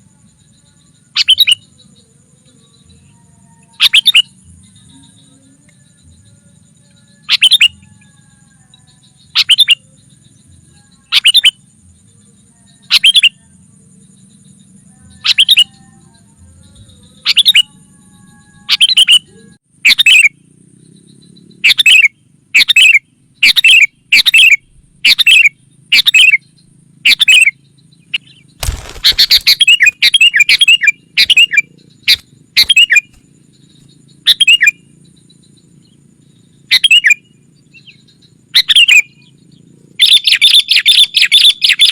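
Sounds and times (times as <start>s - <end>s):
bulbul calls: 1.1s - 1.8s, 3.7s - 5.6s, 7.2s - 8.1s, 9.2s - 10.0s, 11.0s - 11.6s, 12.8s - 13.4s, 15.1s - 16.0s, 16.8s - 17.8s, 18.7s - 20.4s, 21.2s - 41.9s.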